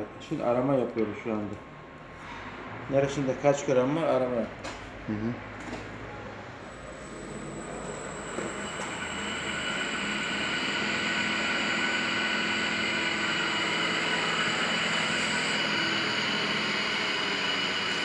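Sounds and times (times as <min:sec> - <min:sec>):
balancing machine whirring: 0:06.8 - 0:18.0.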